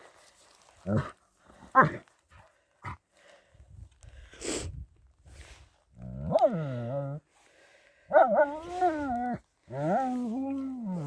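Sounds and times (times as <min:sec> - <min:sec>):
dog whining and grumbling: 0:08.1 - 0:11.0.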